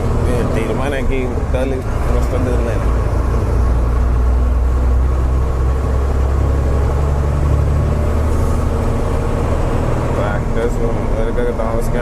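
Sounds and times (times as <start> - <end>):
truck engine drone in cab: 0.0 - 12.0.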